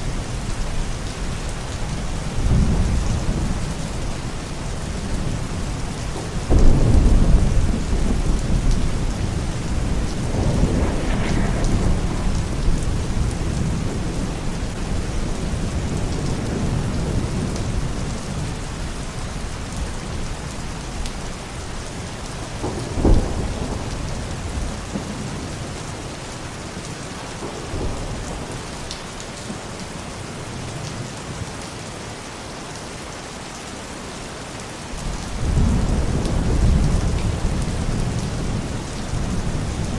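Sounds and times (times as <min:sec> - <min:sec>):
heavy rain: 0:00.0 - 0:39.9
rolling thunder: 0:02.2 - 0:18.6, 0:22.0 - 0:26.1, 0:35.0 - 0:39.9
sharp thunder crack: 0:06.5 - 0:14.8.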